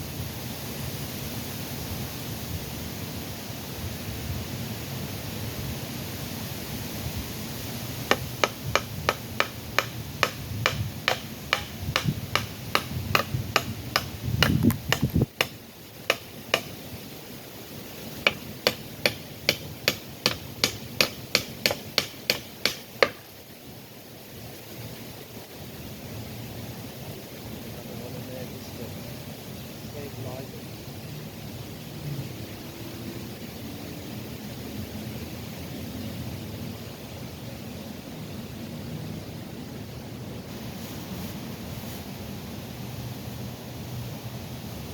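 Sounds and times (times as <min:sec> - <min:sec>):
hammer striking nails: 0:08.1 - 0:16.8, 0:18.2 - 0:23.2.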